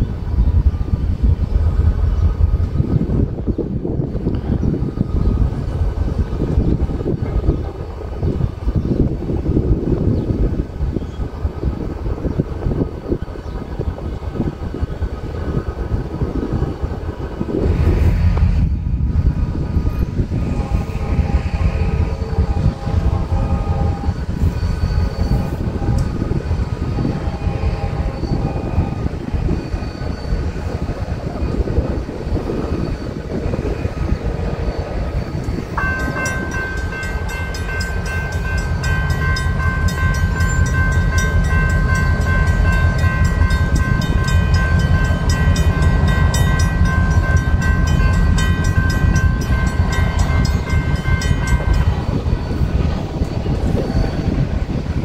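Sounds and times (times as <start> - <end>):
diesel locomotive engines rumbling: 0.0 - 55.0
train horn blasts: 20.3 - 29.3
crossing warning bell ringing: 35.1 - 55.0.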